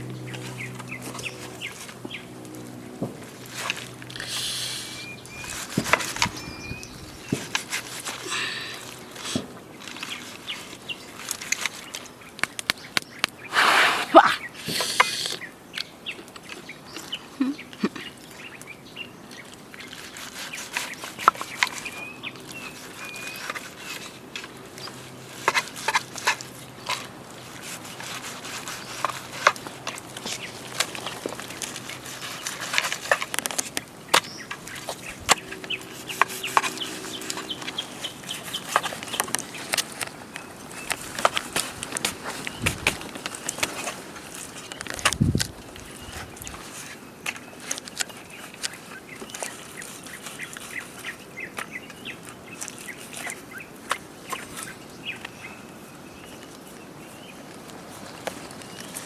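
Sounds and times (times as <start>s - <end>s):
birds chirping: 0.0s - 59.0s
high bird chirps: 6.2s - 7.3s
sharp cracks and snaps: 8.9s - 13.5s.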